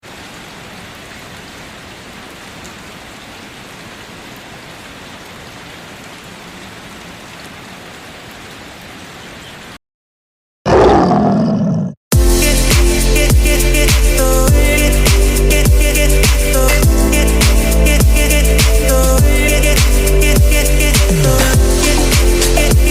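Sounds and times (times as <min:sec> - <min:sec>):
rain hiss: 0:00.0 - 0:09.8, 0:12.4 - 0:22.9
animal roar: 0:10.7 - 0:12.0
music with a beat: 0:12.2 - 0:22.9.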